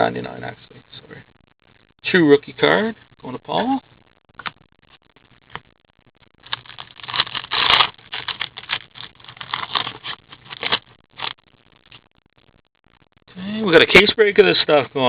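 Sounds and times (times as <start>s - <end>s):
trading cards rustling and scraping: 6.5s - 12.0s.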